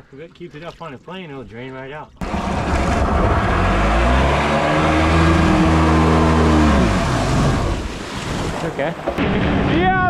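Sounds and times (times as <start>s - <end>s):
jet ski engine revving: 2.2s - 9.2s
rushing water: 2.2s - 9.4s.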